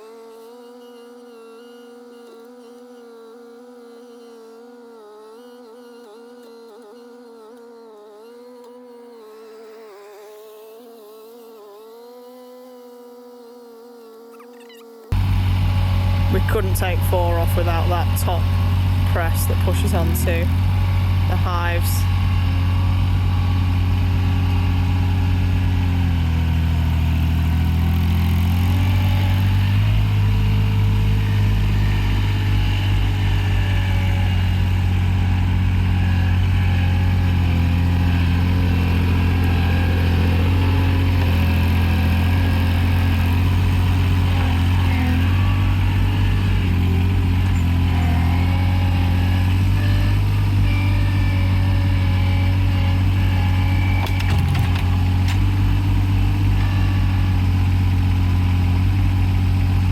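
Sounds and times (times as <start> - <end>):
diesel engine running: 15.1 - 59.9.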